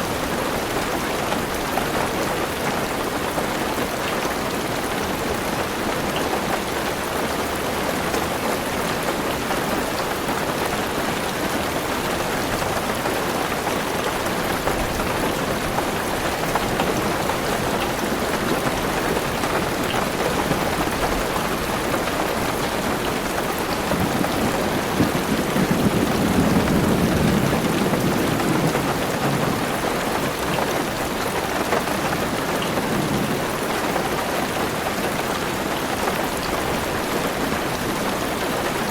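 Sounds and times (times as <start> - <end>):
heavy rain on a car roof: 0.0 - 38.9
low thunder rumble: 23.9 - 29.8.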